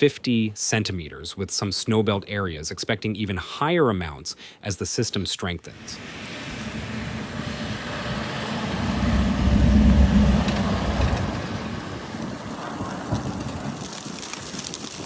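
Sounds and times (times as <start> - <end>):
road vehicle passing: 5.8 - 13.7.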